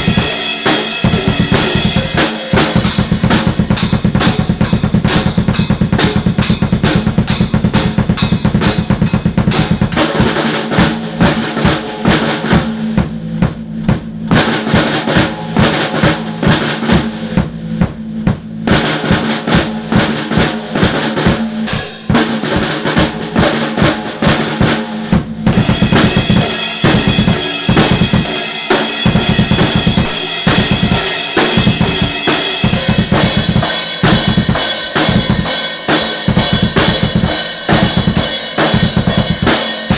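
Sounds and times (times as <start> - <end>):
bass drum and snare strokes: 0.0 - 39.9
cymbals ringing: 25.6 - 36.6.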